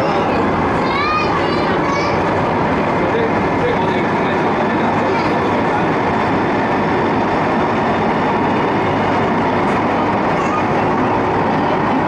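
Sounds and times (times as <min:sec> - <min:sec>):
electric train running: 0:00.0 - 0:12.0.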